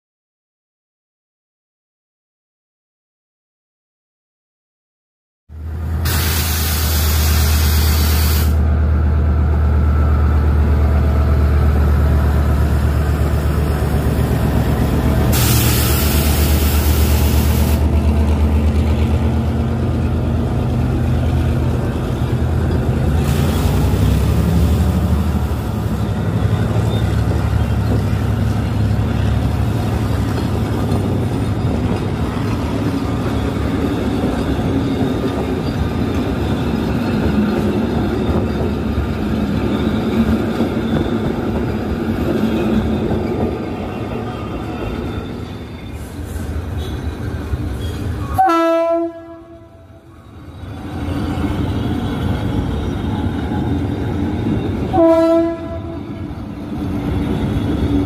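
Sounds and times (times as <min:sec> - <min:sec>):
diesel locomotive engine drone: 0:05.5 - 0:58.0
hissing air bursts: 0:06.1 - 0:08.6, 0:15.3 - 0:17.8
coaches rolling on rails: 0:08.7 - 0:48.5, 0:49.2 - 0:58.0.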